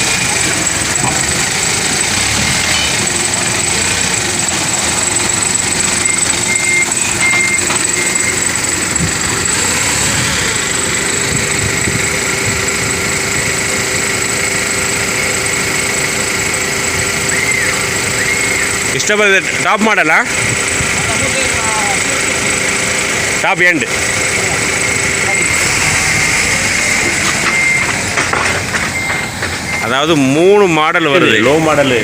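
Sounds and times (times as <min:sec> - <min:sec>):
forklift engine running: 0:00.0 - 0:32.0
short high beeps: 0:02.4 - 0:09.8, 0:24.3 - 0:28.0.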